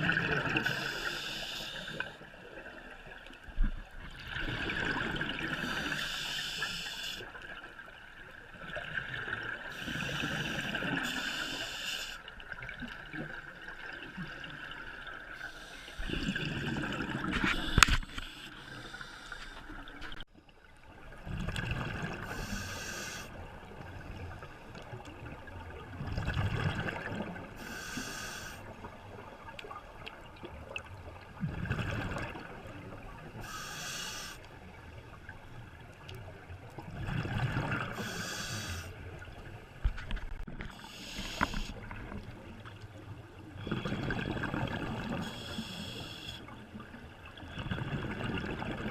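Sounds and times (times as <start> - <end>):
hissing regulator inhalations: 0.6 - 2.2, 5.6 - 7.3, 9.7 - 12.3, 15.4 - 16.4, 17.4 - 19.8, 22.3 - 23.3, 27.6 - 28.6, 33.4 - 34.5, 37.9 - 39.0, 40.7 - 41.8, 45.2 - 46.6.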